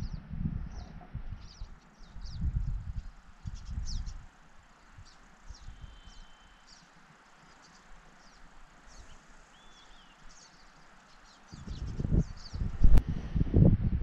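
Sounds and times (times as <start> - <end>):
faint birdsong chirps: 0.0 - 13.0
steady soft hiss: 0.1 - 13.7
thin bird whistle: 5.5 - 6.9, 7.5 - 12.6.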